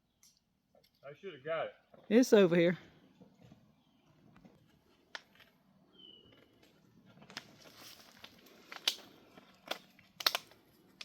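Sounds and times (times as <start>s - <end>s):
bird chirp: 3.1s - 4.4s, 5.8s - 6.6s.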